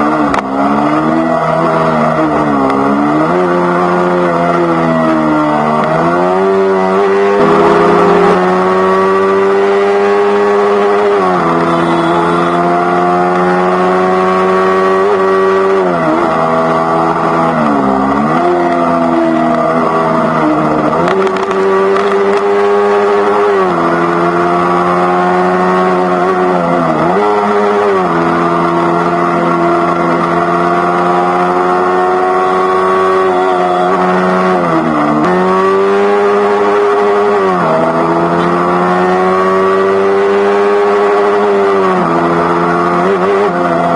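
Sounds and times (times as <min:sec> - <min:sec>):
motorcycle engine cruising: 0:00.0 - 0:43.9.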